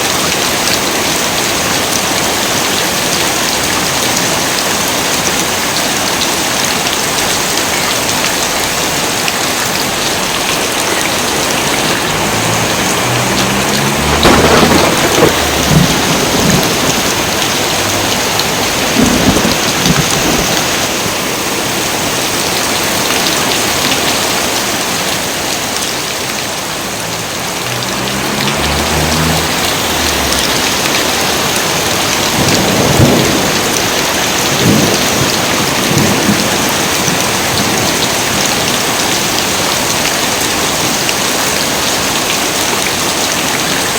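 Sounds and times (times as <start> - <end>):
heavy rain pouring: 0.0 - 43.9
thunder rumbling: 11.0 - 21.2, 27.0 - 38.1.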